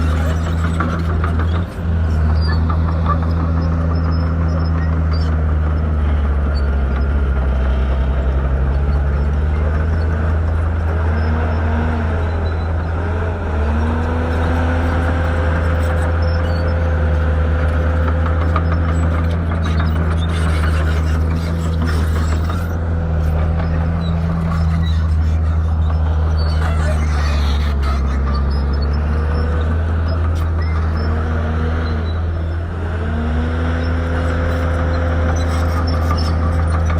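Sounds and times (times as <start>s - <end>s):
bulldozer diesel engine running: 0.0s - 36.9s.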